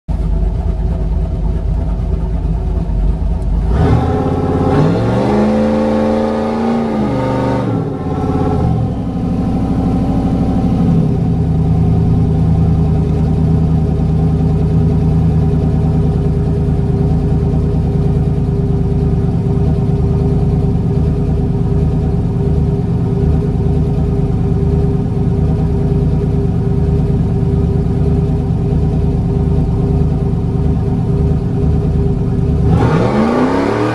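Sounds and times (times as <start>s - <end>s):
truck engine revving and idling: 0.1s - 33.9s.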